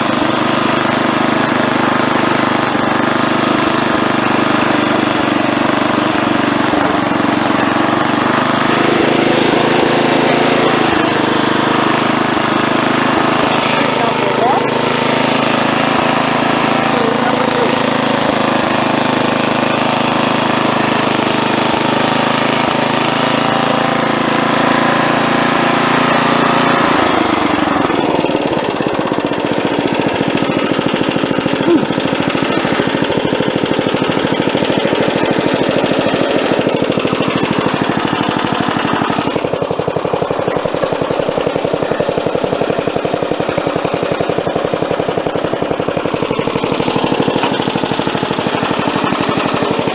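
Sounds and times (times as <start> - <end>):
lawn tractor engine running: 0.0 - 49.9.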